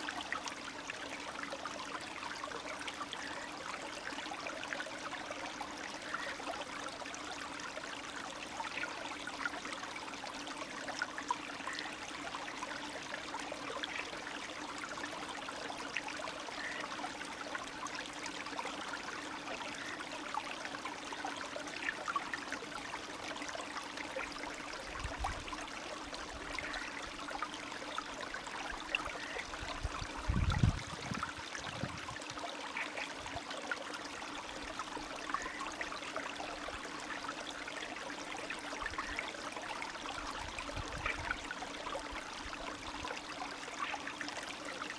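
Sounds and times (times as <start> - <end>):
meltwater stream trickling: 0.0 - 44.9.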